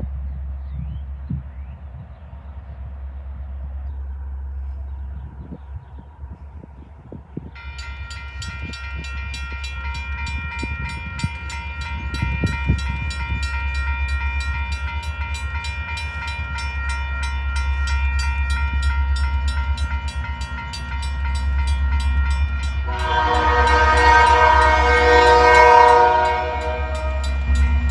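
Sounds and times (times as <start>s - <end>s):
train rumbling: 3.0s - 27.9s
bell ringing rapidly: 7.6s - 27.9s
train horn: 22.1s - 27.9s.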